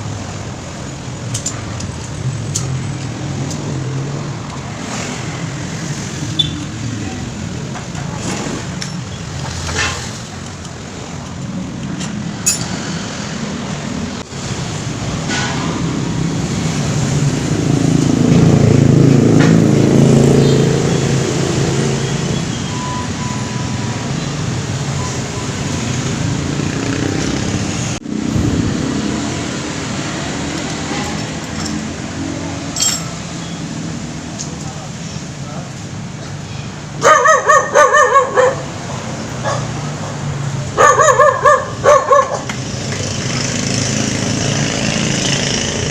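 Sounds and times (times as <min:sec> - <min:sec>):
traffic running steadily: 0:00.0 - 0:45.9
vehicle passing: 0:12.0 - 0:22.6, 0:23.6 - 0:34.3, 0:36.8 - 0:45.9.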